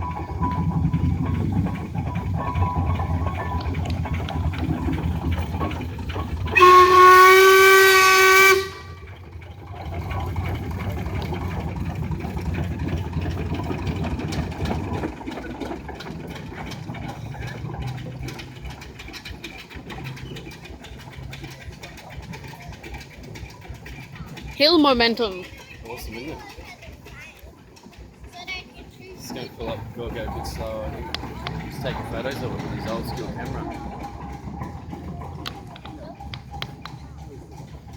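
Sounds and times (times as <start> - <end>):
steam engine rumbling: 0.0 - 37.9
steam whistle blast: 6.5 - 9.0.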